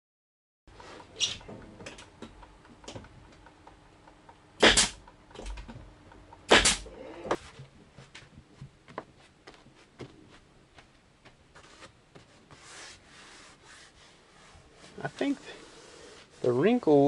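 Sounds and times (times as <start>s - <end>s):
staple gun firing: 4.6s - 5.0s, 6.5s - 6.8s.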